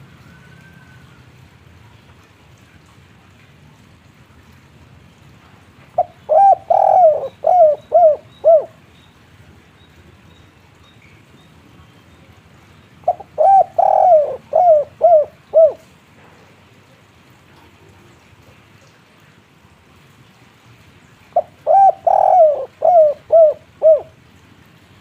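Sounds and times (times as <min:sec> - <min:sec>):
dove cooing: 0:06.0 - 0:08.8, 0:13.0 - 0:15.9, 0:21.4 - 0:24.2.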